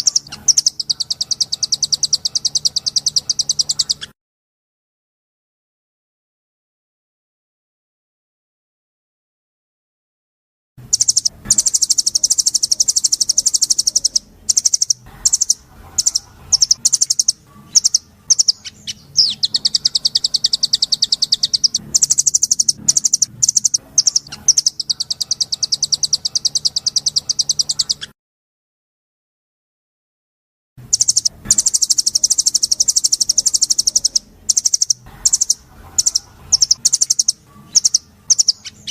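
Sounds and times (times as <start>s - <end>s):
songbird trilling: 0.0s - 4.1s, 10.9s - 28.1s, 30.9s - 38.9s
bird chirps: 0.0s - 4.2s, 10.8s - 28.2s, 30.8s - 38.9s.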